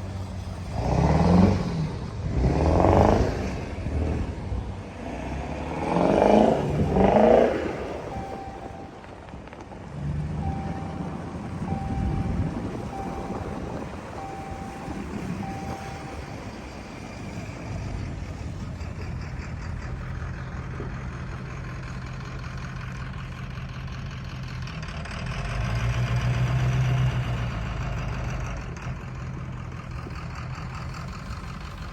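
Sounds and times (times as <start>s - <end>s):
diesel truck engine idling: 0.0s - 0.8s, 3.5s - 31.9s
short beeping chime: 6.8s - 9.0s, 10.4s - 16.5s.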